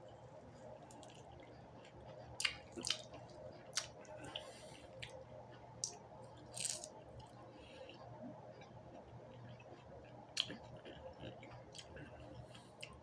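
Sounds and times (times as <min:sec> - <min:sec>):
low steady hum: 0:00.0 - 0:13.0
person chewing wetly: 0:00.9 - 0:13.0.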